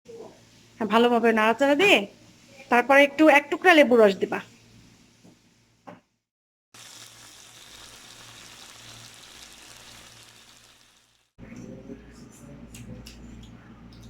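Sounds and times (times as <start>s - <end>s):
chicken sizzling in oil: 6.8s - 11.4s.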